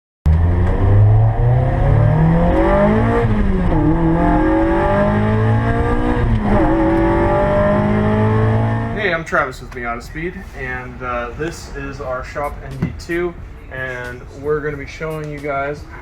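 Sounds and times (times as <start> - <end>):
car engine accelerating: 0.3 - 9.2.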